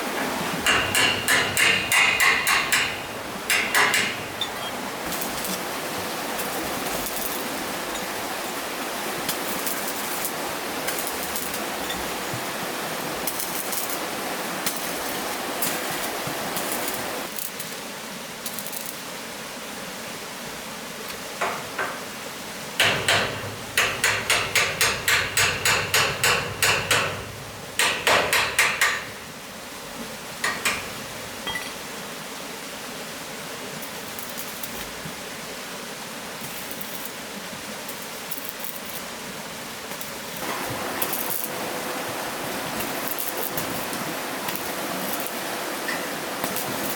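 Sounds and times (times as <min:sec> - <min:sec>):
rapid hammering: 0:00.6 - 0:04.4, 0:22.8 - 0:29.3.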